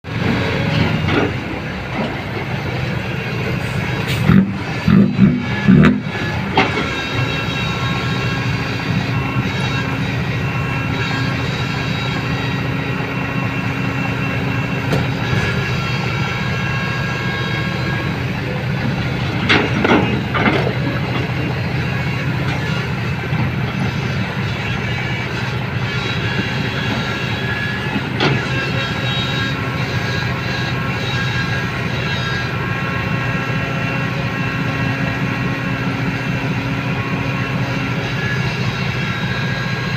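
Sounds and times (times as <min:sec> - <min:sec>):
vehicle engine humming: 0:00.0 - 0:39.9.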